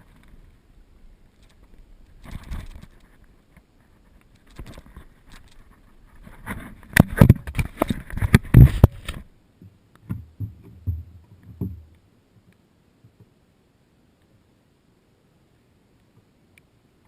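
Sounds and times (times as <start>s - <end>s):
sharp knocks and bumps: 6.4s - 11.9s
soft dull thumps: 9.6s - 13.3s.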